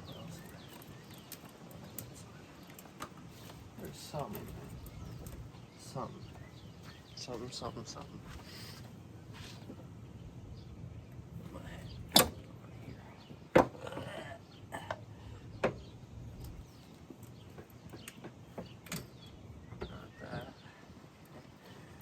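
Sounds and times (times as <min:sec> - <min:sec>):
rustling: 0:00.0 - 0:09.9
knocks and clanks of tools: 0:12.1 - 0:12.5, 0:15.6 - 0:20.0.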